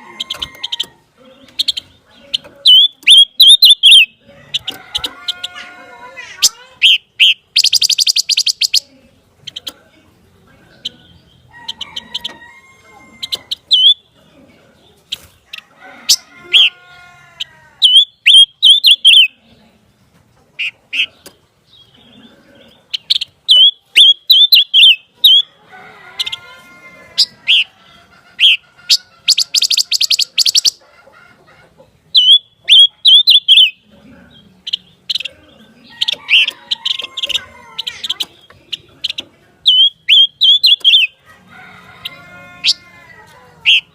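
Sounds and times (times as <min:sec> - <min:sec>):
bird singing sharp chirps: 0:29.3 - 0:30.8.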